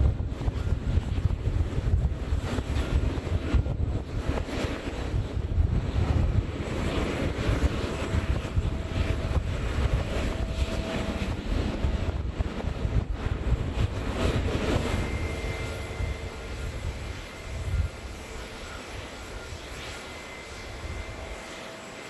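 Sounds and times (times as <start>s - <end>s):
jet engines rumbling: 0.0s - 22.0s
faint whine: 5.8s - 22.0s
high thin whine: 13.3s - 22.0s.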